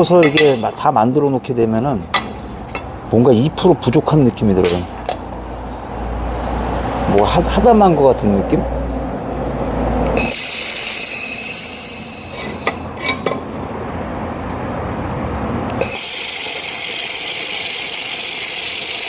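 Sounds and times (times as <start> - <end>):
laser welder hissing: 10.2 - 12.7, 15.8 - 19.0.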